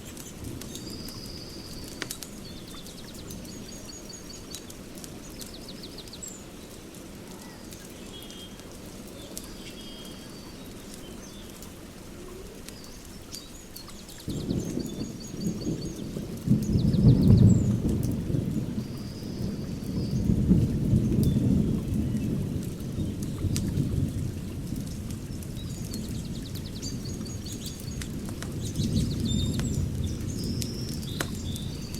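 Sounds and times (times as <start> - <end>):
rain-like hiss: 0.0 - 31.9
sharp crackles: 0.0 - 31.9
birds chirping and trilling: 12.7 - 17.9
thunder rumbling: 14.2 - 31.9.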